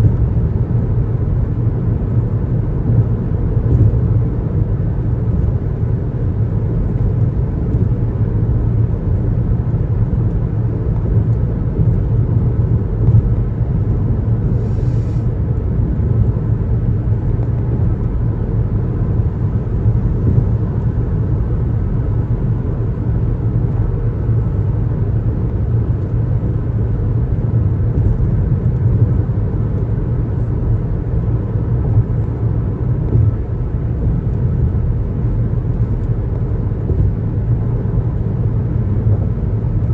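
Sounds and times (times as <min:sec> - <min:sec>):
car tyre and engine rumble: 0:00.0 - 0:39.9
brief hiss: 0:14.5 - 0:15.3.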